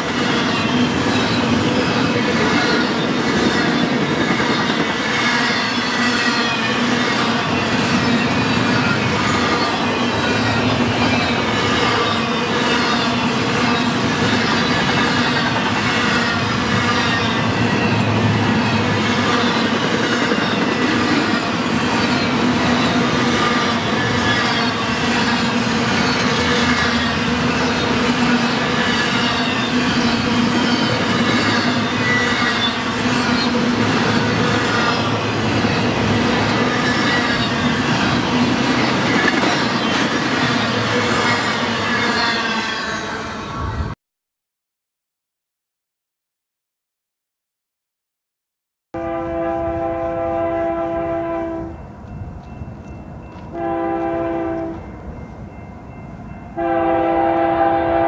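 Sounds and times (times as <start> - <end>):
freight train wheels rumbling: 0.0 - 44.0, 49.0 - 58.0
wheels squealing: 0.1 - 43.8.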